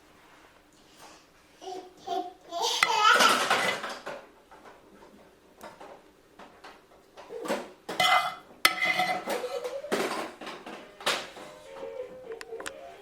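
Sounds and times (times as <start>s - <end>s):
cutlery clinking on dishes: 7.3s - 11.5s
cutlery scraping: 7.3s - 11.6s.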